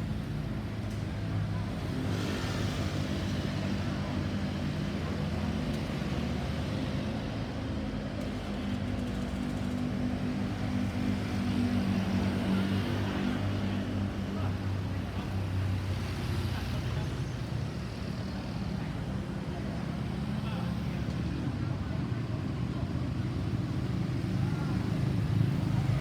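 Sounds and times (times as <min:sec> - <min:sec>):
road noise: 0:21.6 - 0:26.0
vehicle engine humming: 0:25.3 - 0:26.0.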